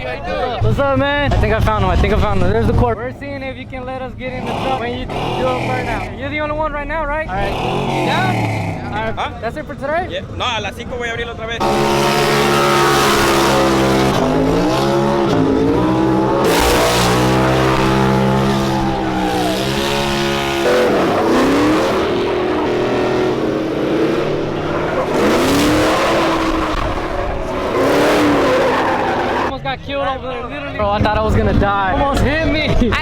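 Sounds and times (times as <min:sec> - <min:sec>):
truck engine revving: 0:04.2 - 0:06.6, 0:07.2 - 0:09.4, 0:11.5 - 0:29.5
spinning tyres hissing: 0:11.6 - 0:29.5.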